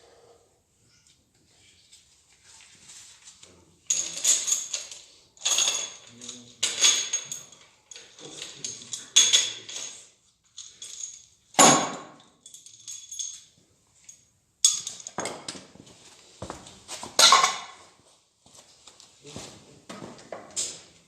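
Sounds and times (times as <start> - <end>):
metal tools clanking on metal: 3.9 - 15.5.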